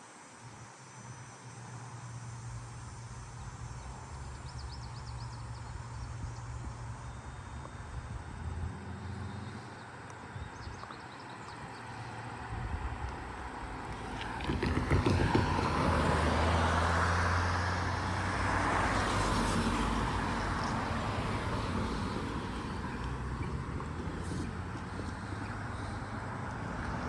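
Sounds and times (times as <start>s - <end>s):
tyre and road noise: 2.1s - 27.0s
vehicle passing: 11.5s - 27.0s.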